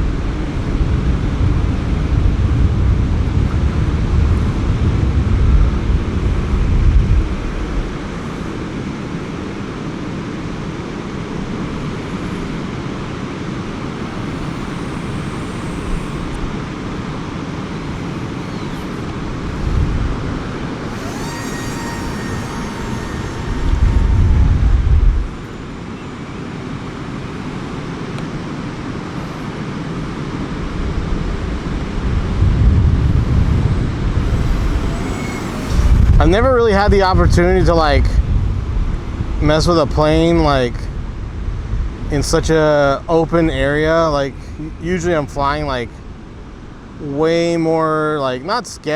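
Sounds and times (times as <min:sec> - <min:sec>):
faint thin whine: 0:13.6 - 0:27.8, 0:33.9 - 0:38.2
wind buffeting microphone: 0:13.8 - 0:26.6, 0:30.9 - 0:45.6.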